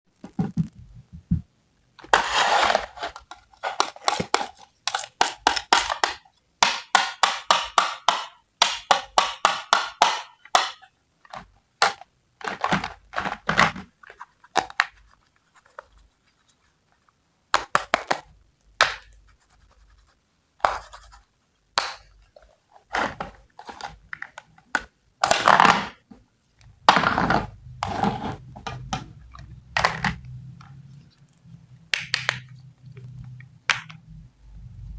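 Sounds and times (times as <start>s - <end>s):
longer scrapes: 2.1s - 3.2s.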